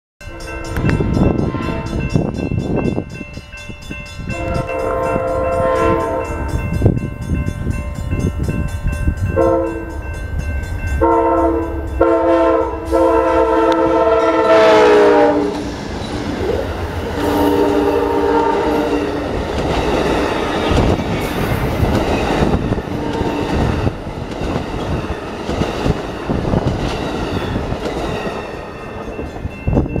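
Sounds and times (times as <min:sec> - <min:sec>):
locomotive horn blasts: 0:00.2 - 0:02.2, 0:04.3 - 0:06.6, 0:09.4 - 0:09.9, 0:11.0 - 0:15.6, 0:17.2 - 0:19.2
train rumble and wheel clatter: 0:00.2 - 0:30.0.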